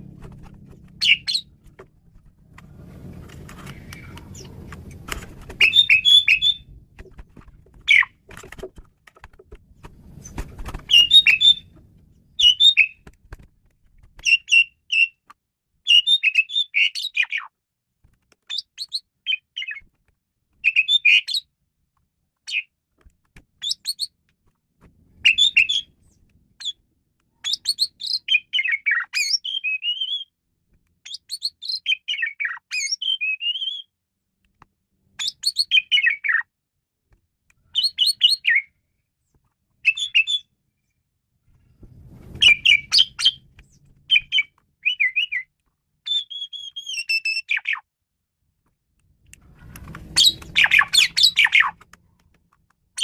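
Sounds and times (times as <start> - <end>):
starling singing: 0.9 - 1.6, 5.6 - 6.7, 10.9 - 11.8, 12.4 - 13.0, 39.8 - 40.5, 42.4 - 43.5, 44.1 - 45.5, 46.1 - 47.8, 50.1 - 51.8.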